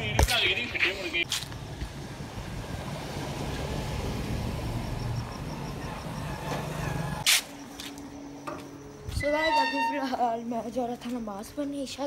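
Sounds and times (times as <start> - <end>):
car engine rumbling: 1.2 - 9.4.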